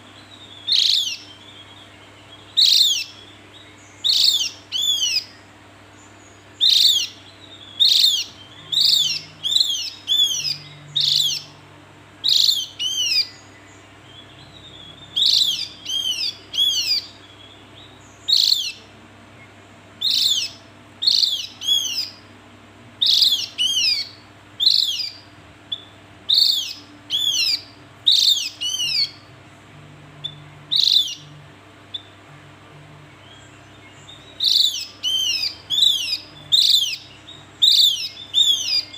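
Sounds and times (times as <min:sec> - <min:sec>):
bird calling sharp notes: 0:00.0 - 0:05.5, 0:06.2 - 0:18.9, 0:20.0 - 0:22.3, 0:23.0 - 0:29.3, 0:30.2 - 0:32.3, 0:33.1 - 0:38.9
faint low hum: 0:00.0 - 0:38.9.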